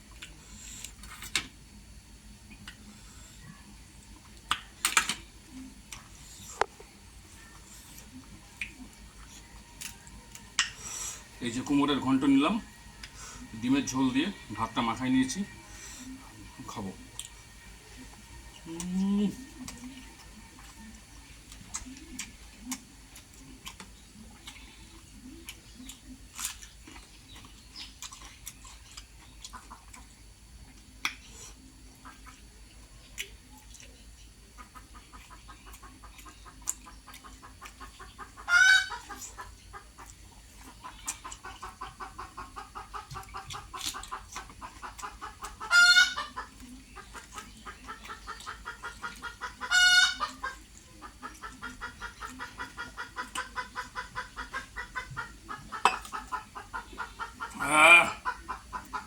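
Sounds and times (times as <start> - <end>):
chickens clucking: 0.0 - 59.0
mouth clicks and smacks of eating: 2.5 - 2.9, 4.0 - 6.9, 7.5 - 10.8, 18.1 - 59.0
hen squawking: 57.2 - 58.5.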